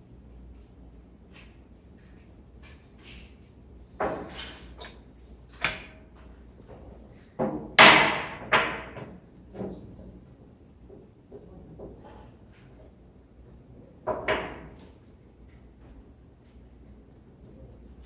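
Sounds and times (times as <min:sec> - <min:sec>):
knocks and clanks of tools: 0:07.4 - 0:10.2, 0:14.0 - 0:14.9.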